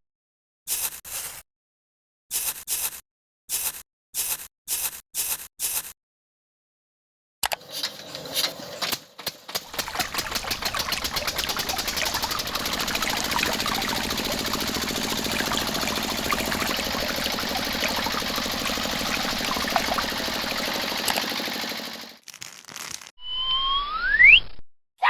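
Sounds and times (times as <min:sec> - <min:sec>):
small machine clattering: 0:07.5 - 0:22.2
rising whistle-like tone: 0:23.2 - 0:24.6.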